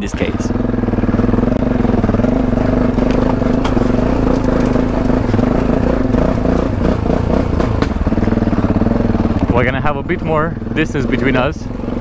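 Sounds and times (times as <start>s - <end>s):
motorcycle engine running: 0.0s - 12.0s
engine clatter clicks: 1.5s - 9.6s.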